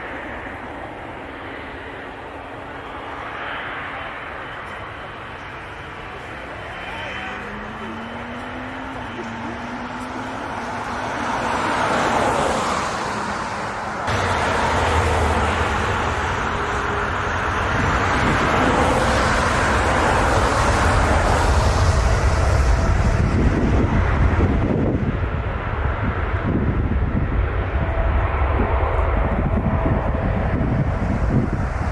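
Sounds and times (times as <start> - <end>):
jet engines running loud: 0.0 - 31.9
deep rumble: 14.1 - 31.9.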